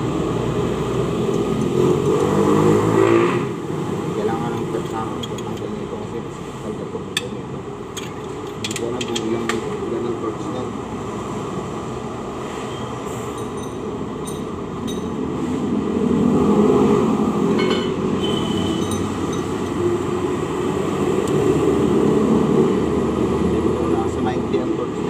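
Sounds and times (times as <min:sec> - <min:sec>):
metal tools clinking on engine: 0:04.5 - 0:05.8, 0:07.2 - 0:09.6, 0:13.2 - 0:15.3, 0:17.5 - 0:19.8.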